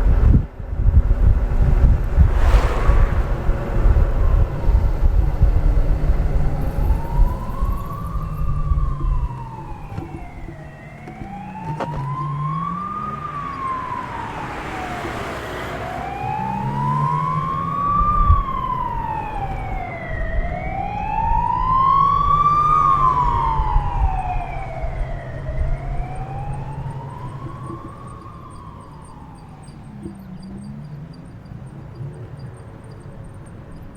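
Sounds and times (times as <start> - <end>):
wind buffeting microphone: 0.0 - 12.2
emergency vehicle siren wailing: 5.0 - 33.8.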